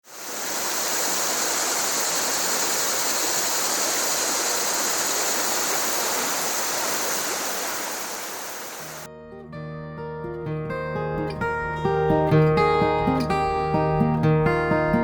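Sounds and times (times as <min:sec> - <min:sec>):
river water rushing: 0:00.0 - 0:09.1.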